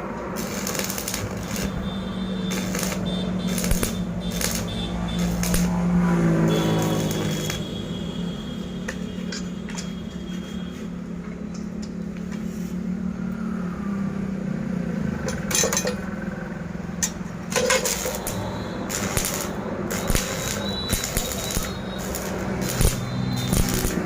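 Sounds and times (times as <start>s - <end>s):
metallic clinks and knocks: 15.2s - 16.1s.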